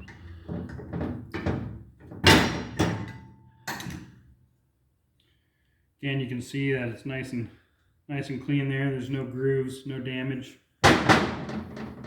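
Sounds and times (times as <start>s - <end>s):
metal parts knocking on a bench: 10.8s - 12.0s.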